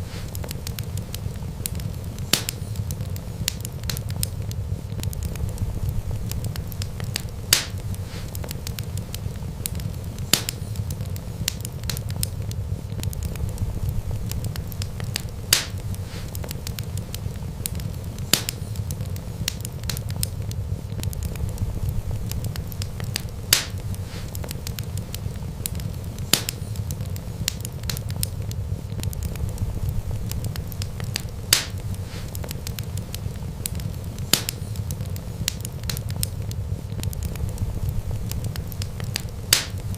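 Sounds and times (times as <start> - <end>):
wood fire crackling: 0.0 - 39.9
sharp pop of fire: 0.1 - 5.6, 6.2 - 12.4, 14.2 - 20.4, 22.2 - 39.9
low rumble: 4.4 - 8.0, 12.2 - 16.0, 20.4 - 24.0, 28.4 - 32.0, 36.4 - 39.5.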